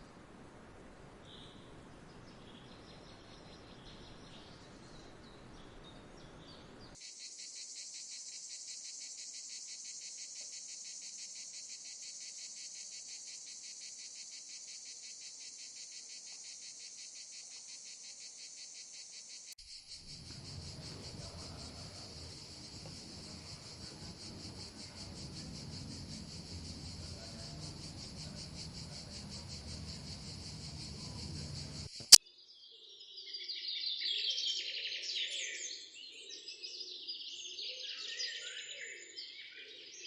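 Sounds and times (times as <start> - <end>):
faint outdoor noise: 0.0 - 7.8, 19.6 - 32.2
insects buzzing: 19.7 - 32.2.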